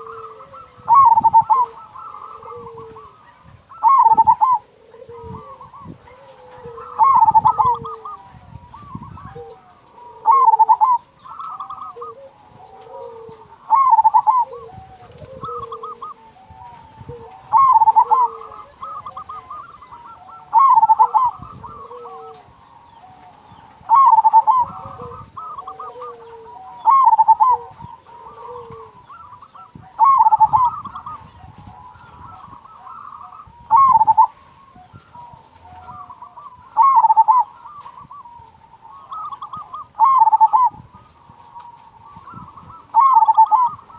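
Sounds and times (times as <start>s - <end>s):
dove cooing: 0.0s - 43.9s
soft low coos: 0.0s - 43.9s.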